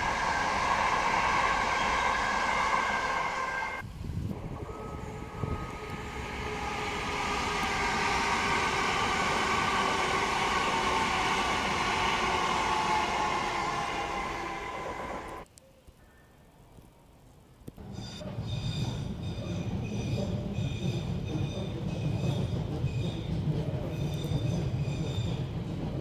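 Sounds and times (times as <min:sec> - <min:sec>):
train motor whine: 0:00.0 - 0:15.4
passenger train passing: 0:00.0 - 0:15.5, 0:17.8 - 0:26.0.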